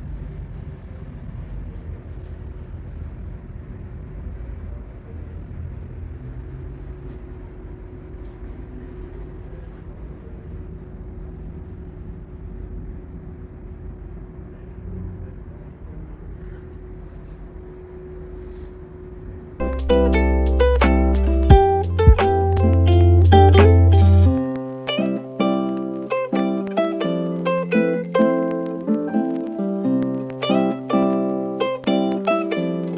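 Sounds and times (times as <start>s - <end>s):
constant hum: 0.0s - 32.9s
low rumble: 19.2s - 24.5s.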